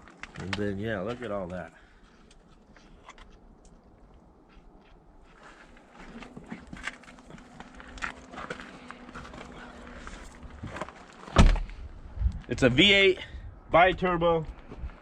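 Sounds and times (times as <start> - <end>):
footsteps walking: 4.4 - 11.8.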